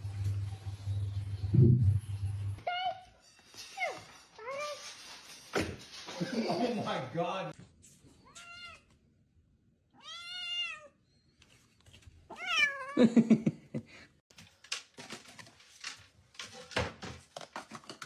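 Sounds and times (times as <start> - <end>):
cat meowing: 8.3 - 8.9, 10.0 - 11.0, 12.3 - 13.0.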